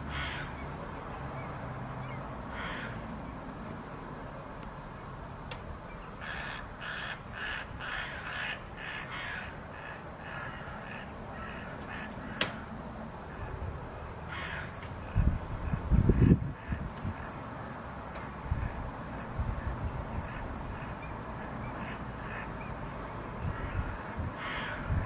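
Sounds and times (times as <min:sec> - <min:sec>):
bird giving harsh caws: 0:00.0 - 0:00.6, 0:02.5 - 0:03.1, 0:06.2 - 0:12.7, 0:14.3 - 0:15.2, 0:23.5 - 0:25.0.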